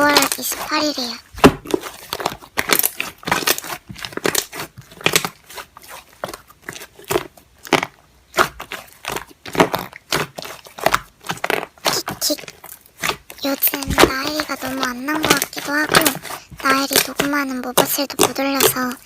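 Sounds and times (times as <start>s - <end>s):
slime crackling and popping: 0.0s - 19.0s.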